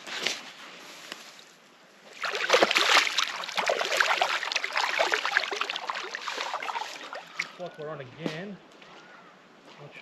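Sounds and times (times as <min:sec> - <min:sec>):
water splashing and sloshing: 0:02.0 - 0:08.4.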